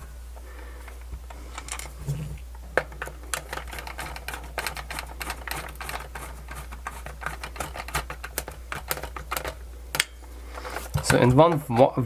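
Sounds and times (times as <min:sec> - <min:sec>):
steady low hum: 0:00.0 - 0:12.0
screwdriver driving screws into plastic: 0:02.8 - 0:09.6.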